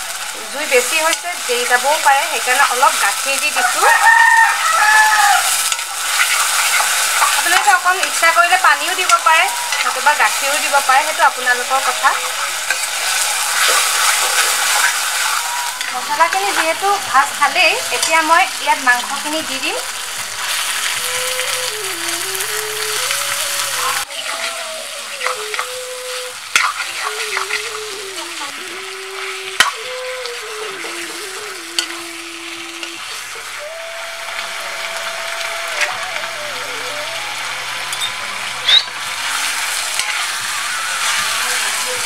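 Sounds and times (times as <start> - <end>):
chicken sizzling in hot oil: 0.0 - 42.0
ladle stirring and scraping: 5.4 - 11.1, 11.9 - 16.8, 25.2 - 28.0.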